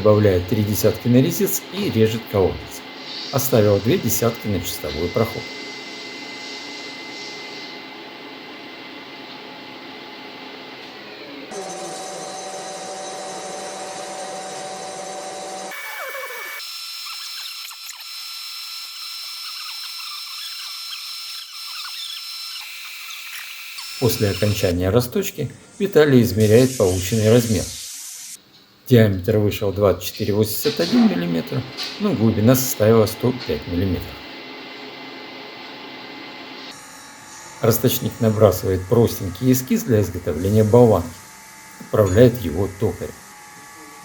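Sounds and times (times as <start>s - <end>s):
steady hiss: 0.0s - 8.1s, 24.0s - 28.4s
faint hum: 0.0s - 16.5s, 28.5s - 43.2s
boring machine spindle whine: 0.0s - 28.4s, 29.7s - 44.0s
cutter scratchy ticks: 16.6s - 24.1s.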